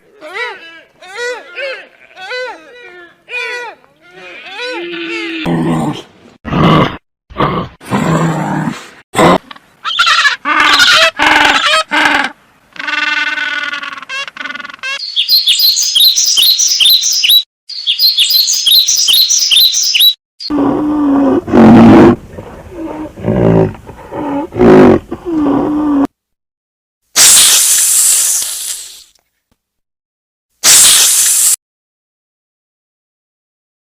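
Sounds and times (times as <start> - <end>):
rapid high bird chirps: 14.9 - 20.5.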